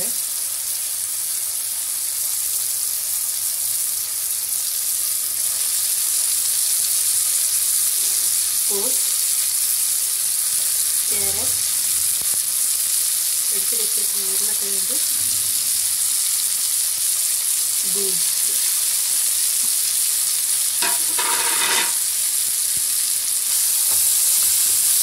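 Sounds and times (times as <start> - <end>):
masala sizzling in hot oil: 0.0 - 25.0.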